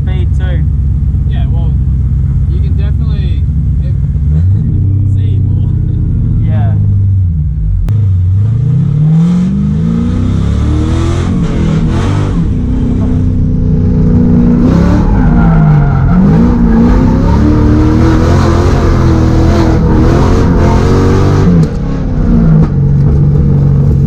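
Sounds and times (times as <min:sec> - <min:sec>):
car engine revving hard: 0:07.9 - 0:22.8.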